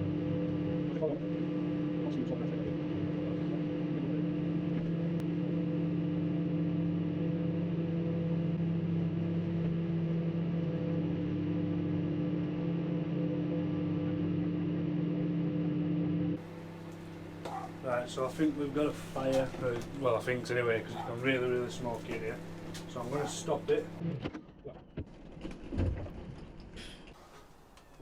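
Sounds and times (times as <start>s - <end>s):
microwave oven humming: 0.0s - 24.2s.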